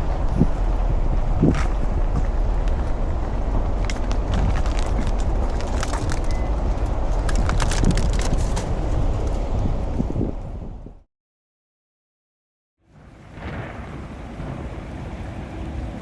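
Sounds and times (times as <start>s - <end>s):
car engine and road noise: 0.0s - 11.0s
rain ticks: 1.5s - 8.6s.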